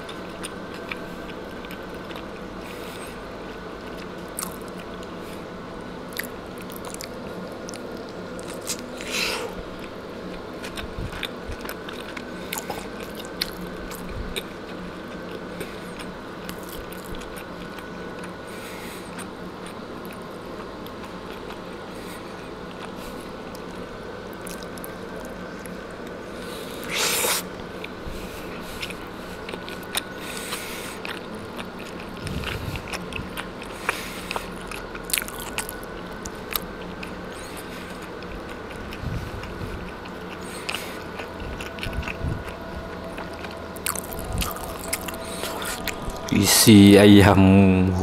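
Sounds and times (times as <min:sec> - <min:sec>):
person chewing: 0:00.0 - 0:05.4, 0:06.1 - 0:23.8, 0:24.4 - 0:25.8, 0:26.5 - 0:46.9
steady background hum: 0:00.0 - 0:48.0.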